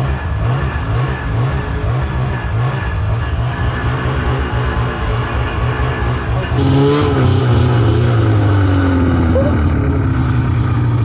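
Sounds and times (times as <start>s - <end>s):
snowmobile engine running: 0.0s - 11.0s.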